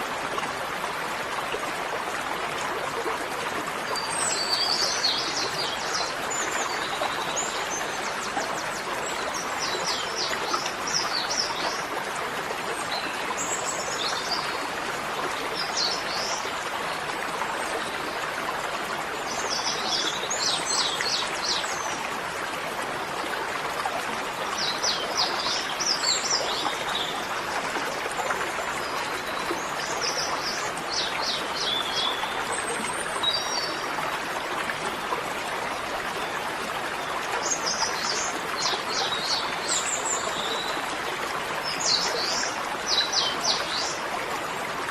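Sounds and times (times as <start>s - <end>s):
running water rushing: 0.0s - 44.9s.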